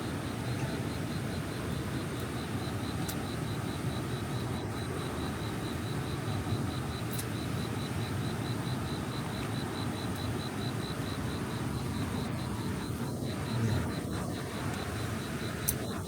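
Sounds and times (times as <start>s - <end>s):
faint high pulsing tone: 10.5s - 16.0s.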